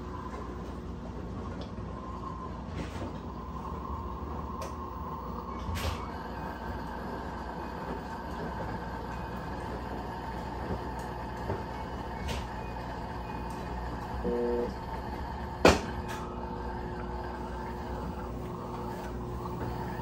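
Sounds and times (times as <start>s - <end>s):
washing machine motor hum: 0.0s - 20.0s.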